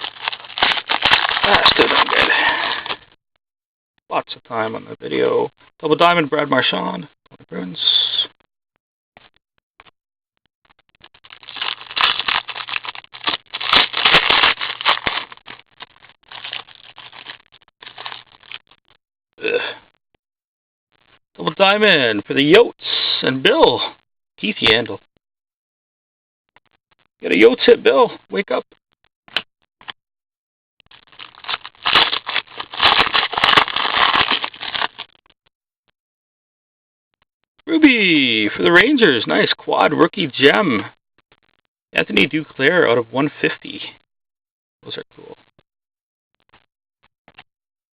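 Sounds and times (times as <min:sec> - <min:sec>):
wrappers torn and crinkled: 0:00.0 - 0:03.0, 0:11.1 - 0:18.8, 0:30.9 - 0:35.2.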